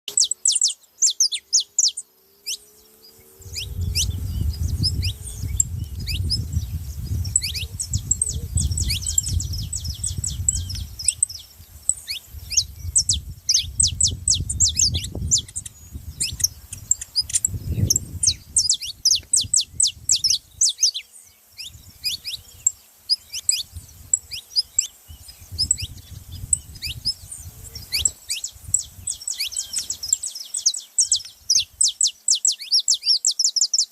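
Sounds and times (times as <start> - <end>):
small birds chirping: 0.0 - 33.9
low gusty rumble: 2.7 - 20.6, 21.7 - 22.6, 25.1 - 29.3.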